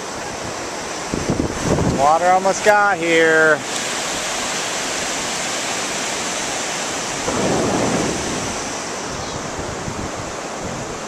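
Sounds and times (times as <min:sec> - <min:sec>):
ocean surf washing on beach: 0:00.0 - 0:11.0
wind on microphone: 0:01.0 - 0:02.2, 0:07.0 - 0:11.0.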